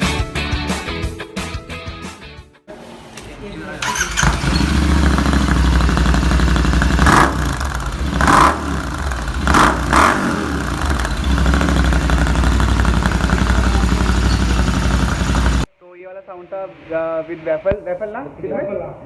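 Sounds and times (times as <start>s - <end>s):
motorcycle engine idling: 2.7s - 15.7s.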